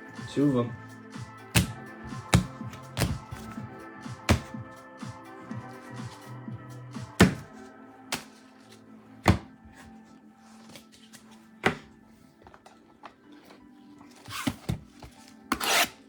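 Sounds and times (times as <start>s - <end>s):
background music: 0.0s - 16.0s
boxes knocking on a table: 1.6s - 3.6s, 4.3s - 4.5s.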